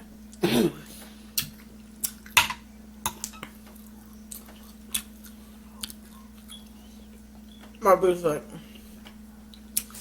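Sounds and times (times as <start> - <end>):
wet chewing: 3.7 - 7.5.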